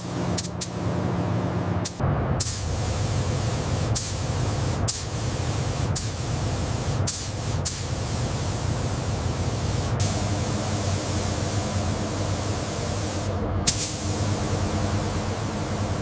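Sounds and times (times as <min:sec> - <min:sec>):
low rumble: 0:00.1 - 0:03.7
locomotive venting steam: 0:02.4 - 0:16.0.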